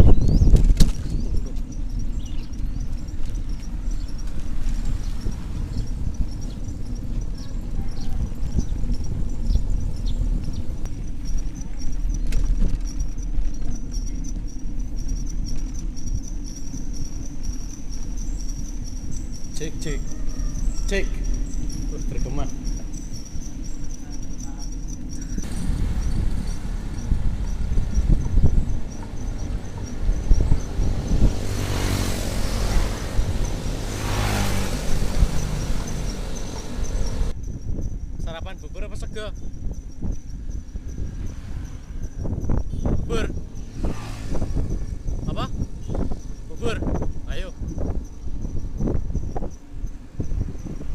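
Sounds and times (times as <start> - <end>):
high chirping: 0.0 - 50.8
traffic passing: 0.0 - 50.9
wind rumbling on microphone: 0.0 - 50.9.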